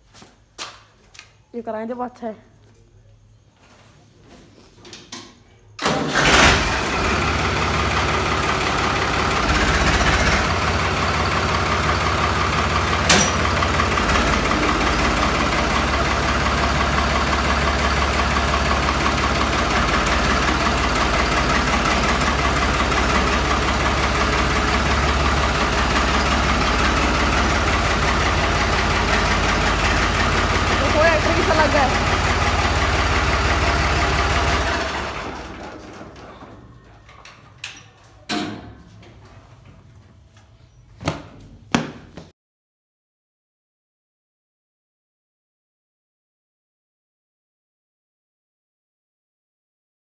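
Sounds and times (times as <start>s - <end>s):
tractor engine idling: 5.8s - 40.8s
tractor engine starting: 5.8s - 42.2s.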